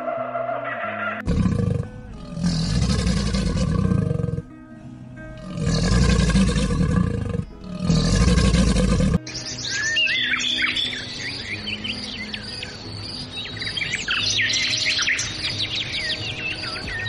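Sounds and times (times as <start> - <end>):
crocodile growling: 1.1 - 4.5, 5.3 - 9.2.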